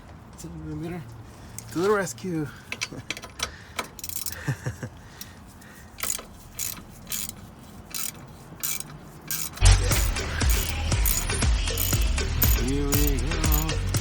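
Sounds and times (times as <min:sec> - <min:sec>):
ratchet wrench clicking: 0:02.6 - 0:04.4, 0:05.2 - 0:14.0.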